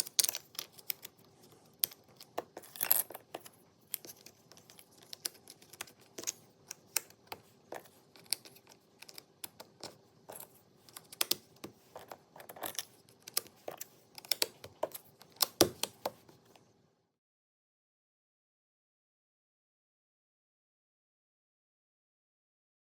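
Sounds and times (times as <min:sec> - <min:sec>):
puzzle pieces clicking and tapping: 0:00.0 - 0:16.2.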